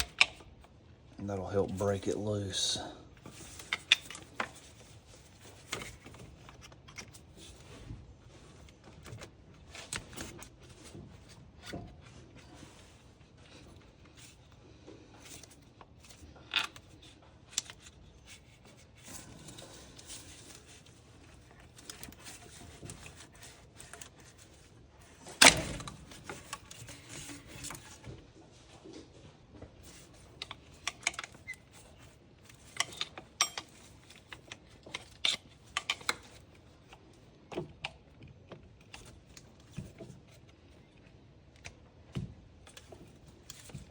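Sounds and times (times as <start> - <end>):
hand tools clinking and scraping: 29.9 - 36.4.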